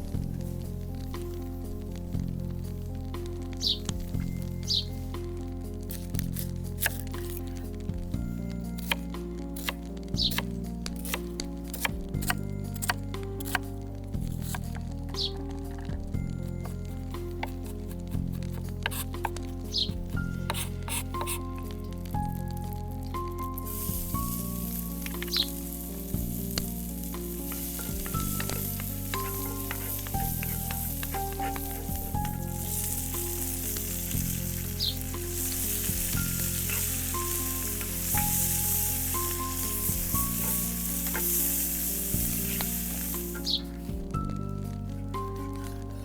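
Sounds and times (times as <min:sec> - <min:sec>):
soft background music: 0:00.0 - 0:46.0
food sizzling in oil: 0:23.2 - 0:43.8.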